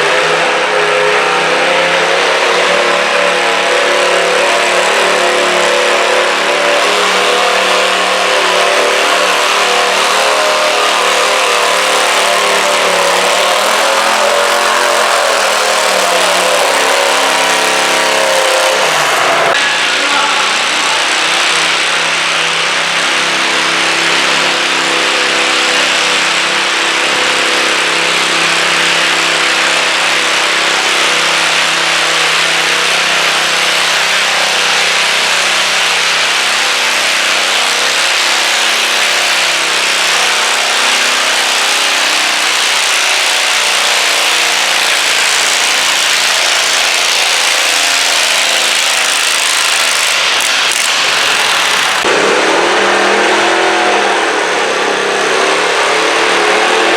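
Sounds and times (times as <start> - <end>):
tractor engine at high revs: 0.0 - 56.9.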